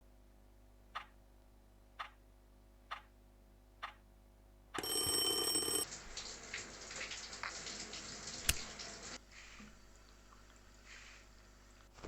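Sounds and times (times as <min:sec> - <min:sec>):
clock ticking: 0:00.9 - 0:01.2, 0:02.0 - 0:02.2, 0:02.9 - 0:03.1, 0:03.8 - 0:04.0
alarm clock ringing: 0:04.8 - 0:05.9.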